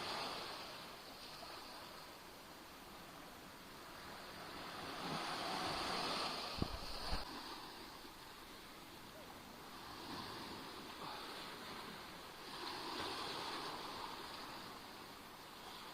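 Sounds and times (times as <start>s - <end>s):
waves washing onto shore: 0.0s - 15.9s.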